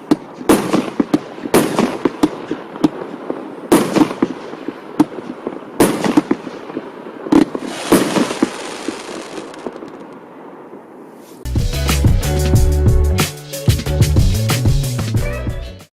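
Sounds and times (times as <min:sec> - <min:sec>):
firework bangs: 0:00.0 - 0:10.8
firework crackling: 0:00.0 - 0:11.4.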